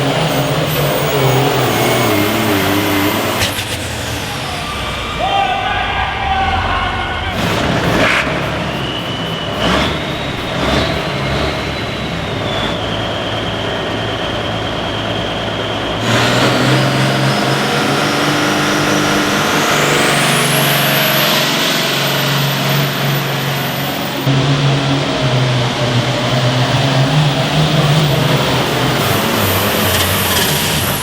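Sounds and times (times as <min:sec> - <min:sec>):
high steady whistles: 0:00.0 - 0:25.2, 0:26.0 - 0:31.0
high whine climbing in pitch: 0:00.0 - 0:31.0
vehicle engine running: 0:00.0 - 0:31.0.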